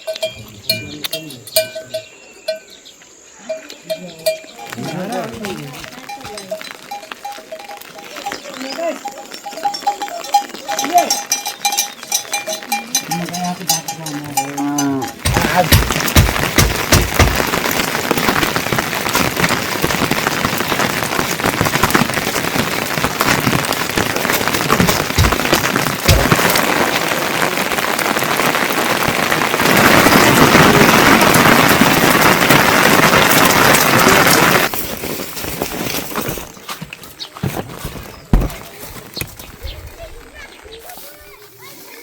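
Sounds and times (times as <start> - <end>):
close raindrops striking hard: 0.0 - 2.7, 3.5 - 41.9
heavy rain falling: 4.2 - 36.3.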